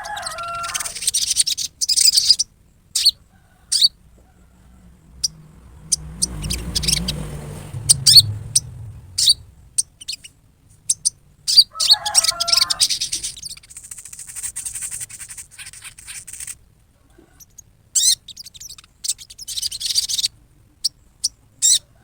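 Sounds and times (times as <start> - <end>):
bird chattering calls: 0.0 - 4.0, 5.1 - 10.3, 10.9 - 16.6, 17.3 - 21.9
low rumble: 4.6 - 9.8.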